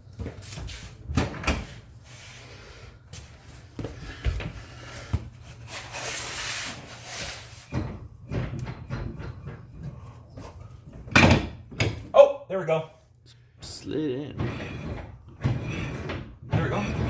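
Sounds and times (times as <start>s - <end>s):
metal knocks and clunks: 7.7s - 12.1s.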